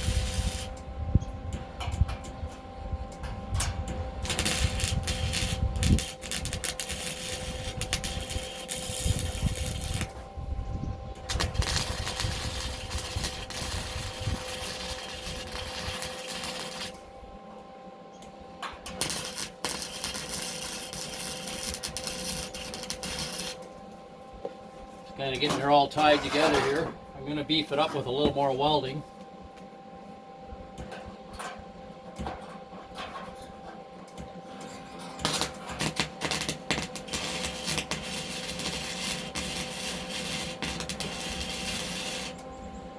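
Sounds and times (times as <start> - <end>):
welder arc crackling: 0.0 - 0.9, 1.5 - 10.4, 11.1 - 17.1, 18.8 - 23.8, 34.1 - 42.5.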